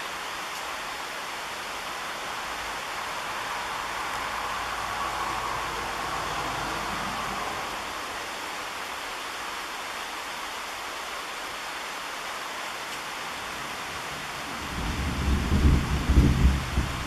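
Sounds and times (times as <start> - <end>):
rain falling: 0.0 - 17.0
thunder rumbling: 14.6 - 17.0.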